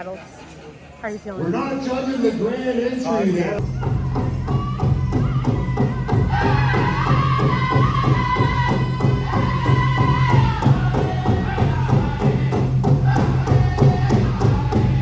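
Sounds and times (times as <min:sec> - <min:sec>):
singers holding high line: 0:01.4 - 0:15.0
large drum beating fast: 0:03.6 - 0:15.0.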